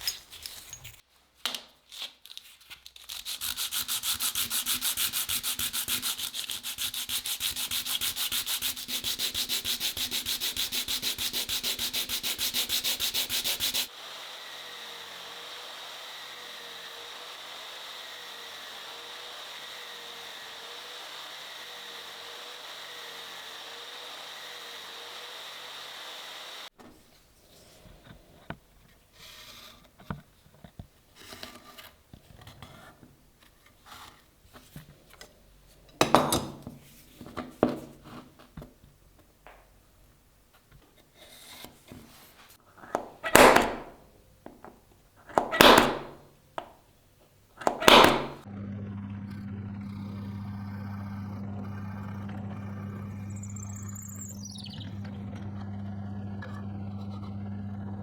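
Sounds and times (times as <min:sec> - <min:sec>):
loud scraping strokes: 0:03.3 - 0:13.9
electric motor hum: 0:11.9 - 0:26.7, 0:47.6 - 0:58.0
power tool whining: 0:12.2 - 0:26.7, 0:42.8 - 0:44.0, 0:47.6 - 0:58.0
handling clicks: 0:47.6 - 0:48.4.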